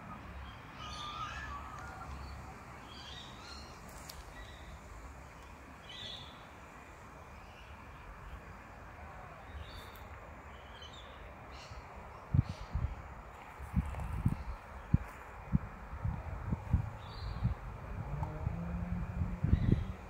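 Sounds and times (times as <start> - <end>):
bird calls: 0.1 - 4.8.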